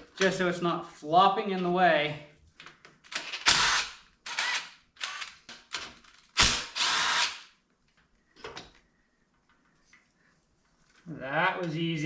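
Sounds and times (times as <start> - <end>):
power tool tightening bolts: 3.1 - 7.4.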